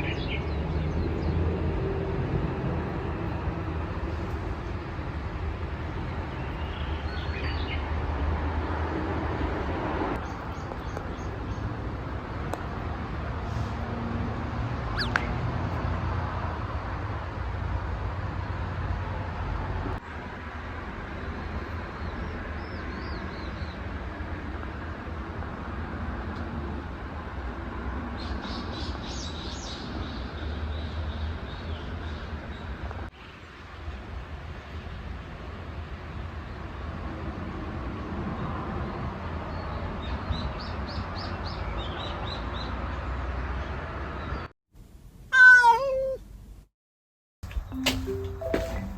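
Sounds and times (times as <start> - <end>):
small birds chirping: 14.9 - 15.4.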